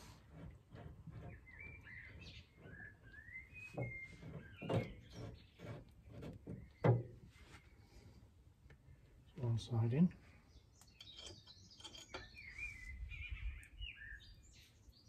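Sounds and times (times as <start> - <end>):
small bird chirping: 1.1 - 6.9, 10.2 - 15.0.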